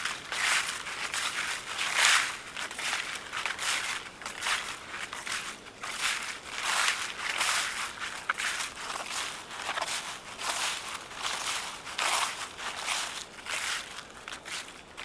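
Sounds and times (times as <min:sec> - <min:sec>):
footsteps crunching dry leaves: 0:00.0 - 0:15.0.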